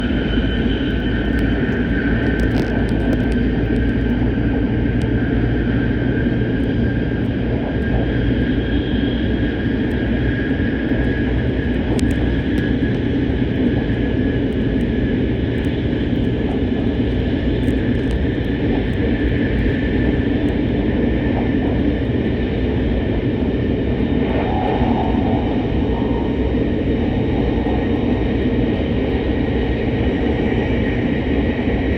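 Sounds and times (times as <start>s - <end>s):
train cabin rumble: 0.0s - 31.9s
thin high whine: 23.5s - 29.7s.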